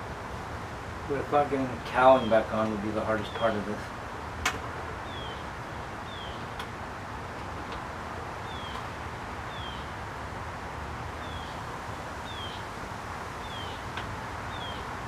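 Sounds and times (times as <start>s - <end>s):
steady outdoor hiss: 0.0s - 15.0s
bird chirping: 5.0s - 6.4s, 8.4s - 8.9s, 9.5s - 9.9s, 11.2s - 12.7s, 13.4s - 15.0s.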